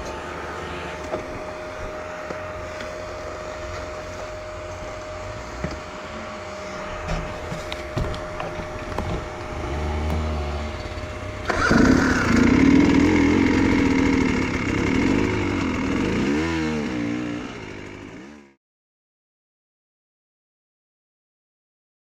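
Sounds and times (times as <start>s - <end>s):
motorcycle engine revving: 0.0s - 18.6s.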